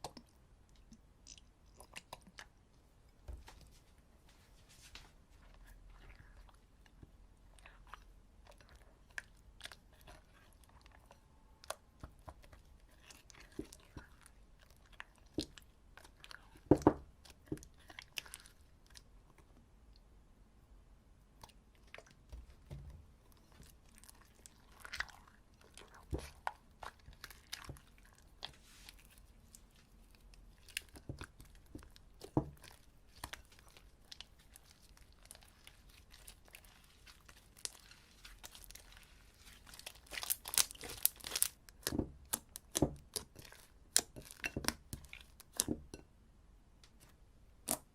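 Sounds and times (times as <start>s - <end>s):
sticky slime clicks and crackles: 39.7s - 45.8s.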